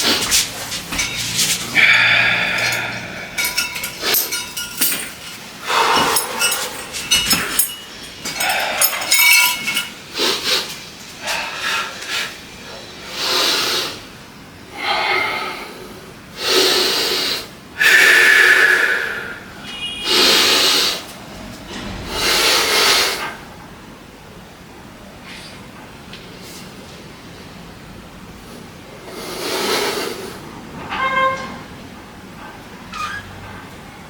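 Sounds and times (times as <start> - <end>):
person breathing heavily: 0.0 - 14.0, 14.7 - 21.1
metal weights clinking: 0.3 - 10.3.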